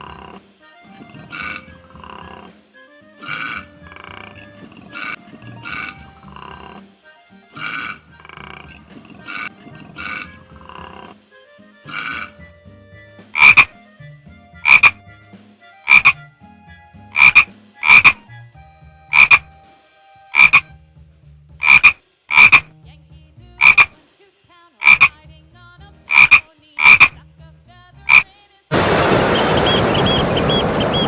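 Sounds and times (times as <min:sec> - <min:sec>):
animal giving short sharp calls: 0:01.0 - 0:02.6, 0:03.2 - 0:06.9, 0:07.6 - 0:11.2, 0:11.9 - 0:12.4, 0:13.3 - 0:13.8, 0:14.6 - 0:15.0, 0:15.8 - 0:16.2, 0:17.1 - 0:18.2, 0:19.1 - 0:19.5, 0:20.4 - 0:20.7, 0:21.6 - 0:22.7, 0:23.6 - 0:24.0, 0:24.8 - 0:25.1, 0:26.1 - 0:27.2.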